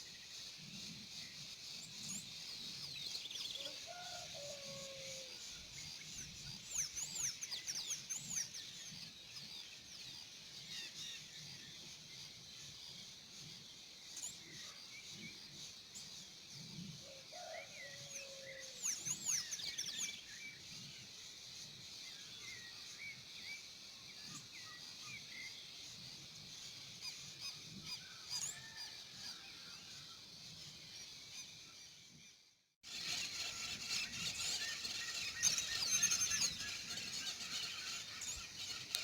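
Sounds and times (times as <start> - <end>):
birds chirping and calling: 32.9 - 39.0.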